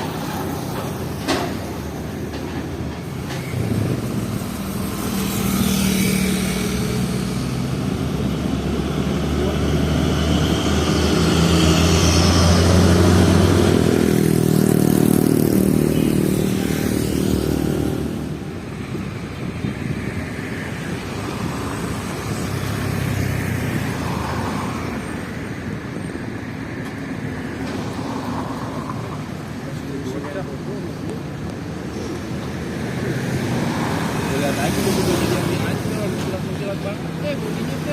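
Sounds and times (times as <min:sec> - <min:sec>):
truck diesel engine passing: 0:00.0 - 0:18.8
hum of traffic: 0:00.0 - 0:37.9.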